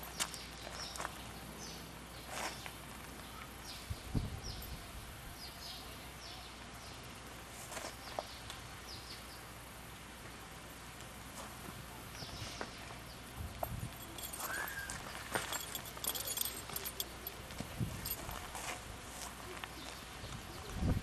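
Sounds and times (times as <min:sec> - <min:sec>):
small birds chirping: 0:00.0 - 0:04.8, 0:05.4 - 0:07.2, 0:12.0 - 0:18.2.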